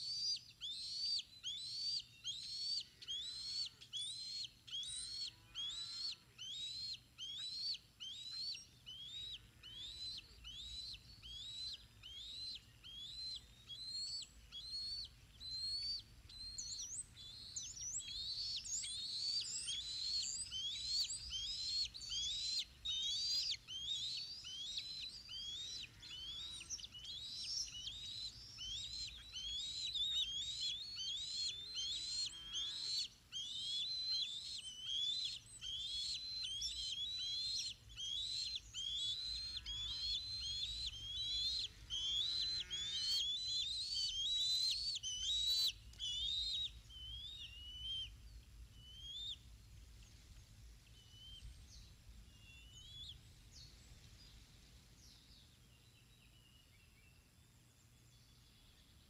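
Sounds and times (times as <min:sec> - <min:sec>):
lower rough bird calls: 0:00.0 - 0:54.4
bird chirping: 0:00.0 - 0:59.0.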